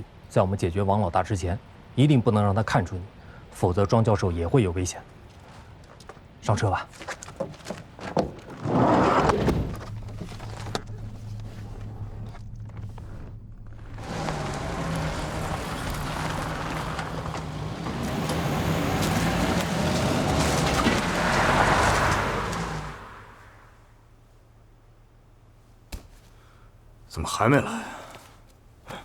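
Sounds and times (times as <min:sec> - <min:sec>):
road noise: 0:04.8 - 0:24.9
car engine running: 0:09.6 - 0:23.8.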